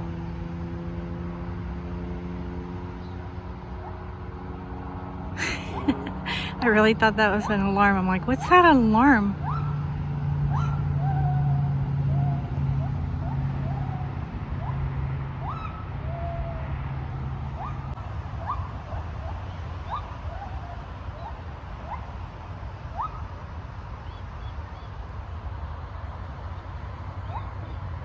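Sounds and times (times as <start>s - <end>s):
freeway traffic rumble: 0.0s - 28.0s
gibbons calling: 5.4s - 8.6s.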